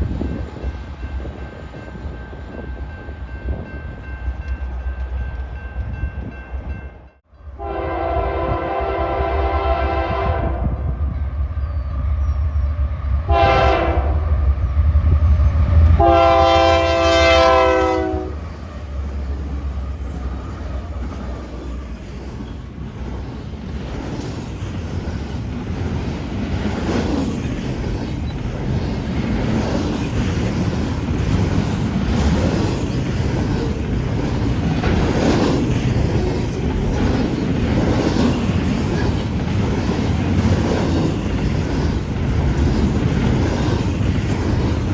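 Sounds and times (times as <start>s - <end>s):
train wheels rumbling on rail: 0.0s - 44.9s
train air horn blasts: 7.5s - 10.8s, 13.3s - 14.2s, 16.0s - 18.4s
wheels clacking over rail joints: 18.4s - 44.9s.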